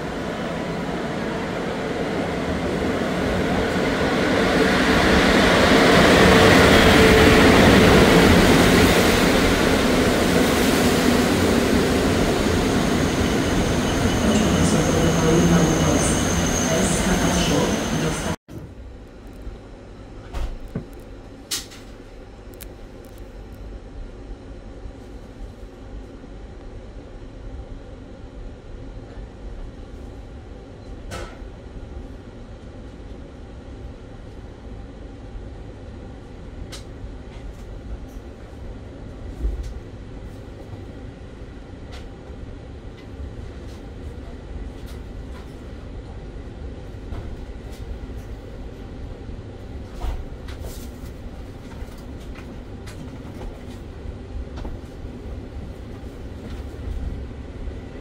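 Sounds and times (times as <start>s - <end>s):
train wheels rumbling on rails: 0.0s - 18.8s.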